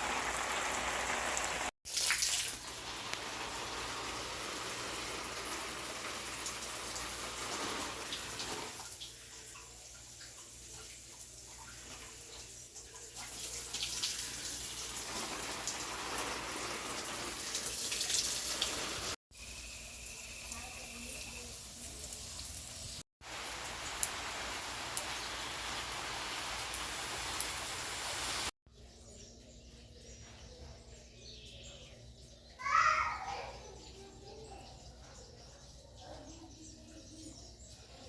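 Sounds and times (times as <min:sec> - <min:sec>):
rushing water hiss: 0:00.0 - 0:09.1, 0:13.8 - 0:28.5.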